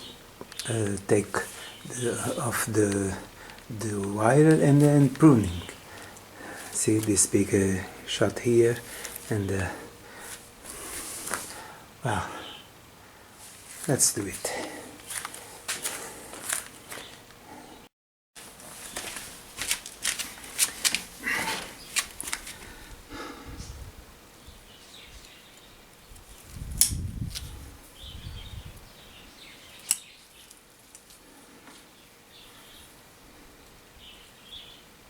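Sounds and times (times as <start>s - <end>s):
wire cutters snipping: 29.8s - 31.1s.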